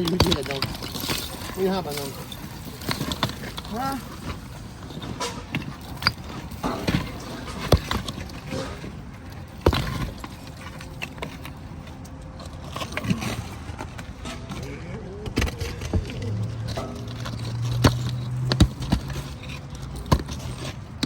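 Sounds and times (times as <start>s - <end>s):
knocks and clatters on a roof: 0.0s - 14.6s, 15.2s - 21.0s.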